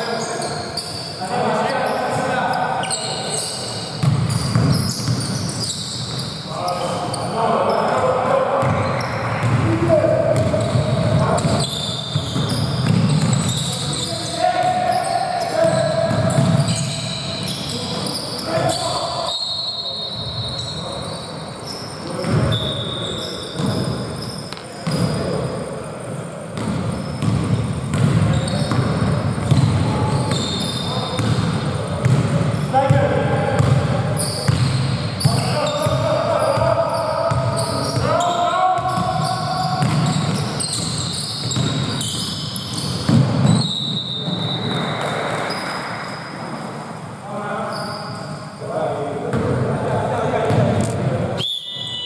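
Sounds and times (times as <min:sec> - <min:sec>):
shoes squeaking on floor: 0:00.0 - 0:09.6, 0:10.3 - 0:25.8, 0:26.6 - 0:32.8, 0:33.6 - 0:46.8, 0:47.6 - 0:48.7
court noise: 0:00.0 - 0:52.0
basketball bouncing: 0:04.0 - 0:05.3, 0:10.4 - 0:13.6, 0:26.6 - 0:30.5, 0:31.2 - 0:33.0, 0:33.6 - 0:36.0, 0:37.3 - 0:38.0, 0:38.8 - 0:42.0, 0:42.8 - 0:43.7.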